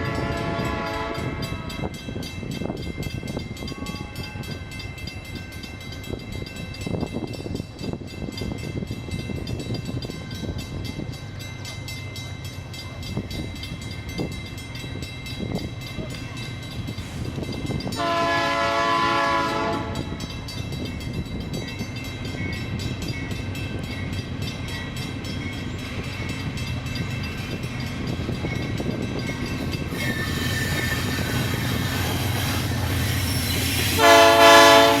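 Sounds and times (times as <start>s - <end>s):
train horn blasts: 0.0s - 1.9s, 3.7s - 4.6s, 18.0s - 20.2s, 33.4s - 35.0s
train wheels rumbling: 0.0s - 35.0s.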